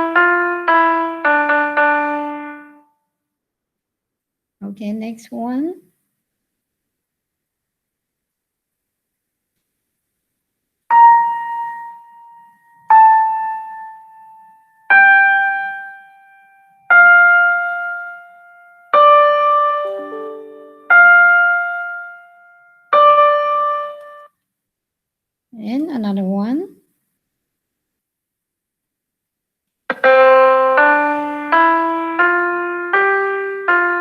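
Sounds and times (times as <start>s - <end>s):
bell-like keyboard notes: 10.9s - 24.3s.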